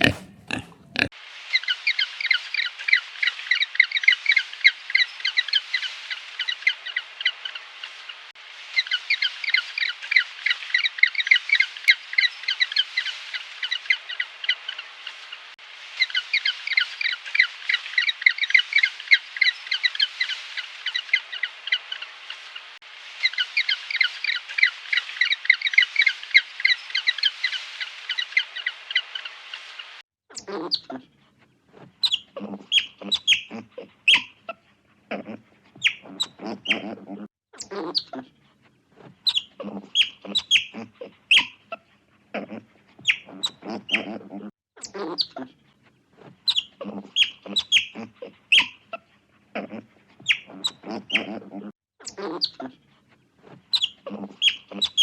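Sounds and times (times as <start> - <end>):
fowl chirping: 0.0 - 1.1, 32.0 - 38.2, 39.3 - 41.8, 42.4 - 45.4, 46.5 - 49.0, 49.6 - 52.6, 53.8 - 55.0.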